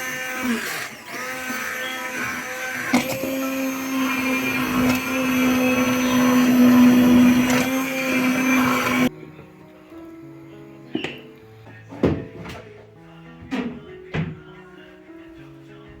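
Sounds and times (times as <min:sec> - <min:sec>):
kitchen appliance motor running: 0:00.0 - 0:09.1.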